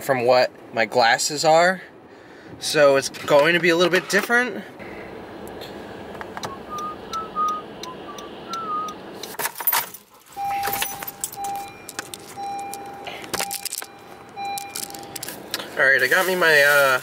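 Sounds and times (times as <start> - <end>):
keys jangling: 9.4 - 15.4
beeping tone: 10.4 - 15.2.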